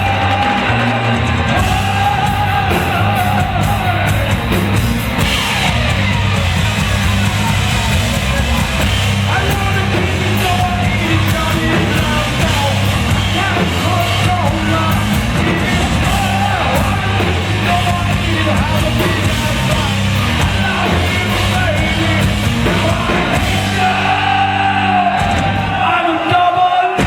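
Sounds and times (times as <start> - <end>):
hard rock band playing: 0.0 - 27.0
heavy bass: 0.0 - 27.0
person singing and shouting: 9.2 - 27.0.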